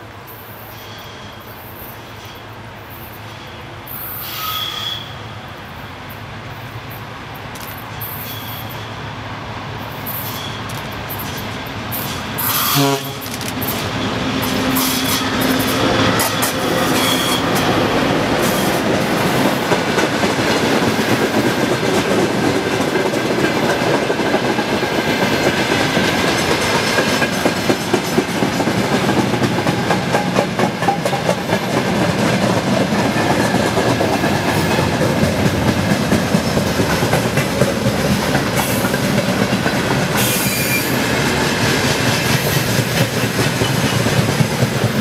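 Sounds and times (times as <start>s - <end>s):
freight train rumbling past: 0.0s - 45.0s
wheels clicking over rail joints: 10.1s - 45.0s.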